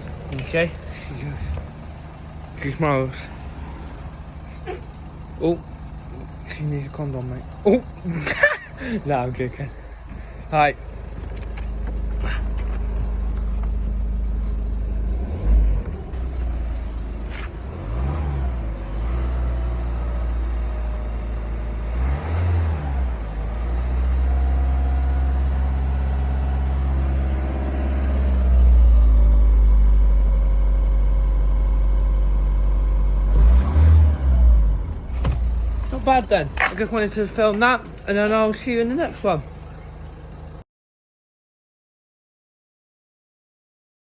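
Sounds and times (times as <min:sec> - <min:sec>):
car engine idling and revving: 0:00.0 - 0:40.6.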